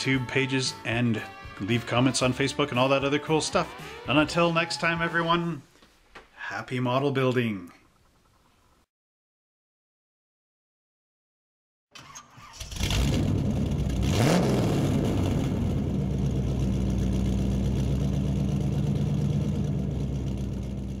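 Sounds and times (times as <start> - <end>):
car engine starting and idling: 3.3 - 4.6, 12.0 - 21.0.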